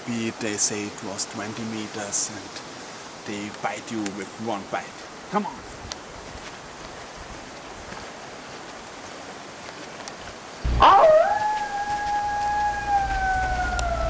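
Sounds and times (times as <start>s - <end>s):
canine howl: 10.8s - 14.0s.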